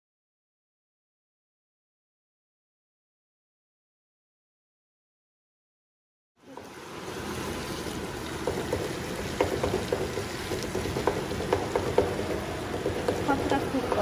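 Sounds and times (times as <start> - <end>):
chicken sizzling in oil: 6.4 - 14.0
spatula knocking in pan: 8.4 - 14.0.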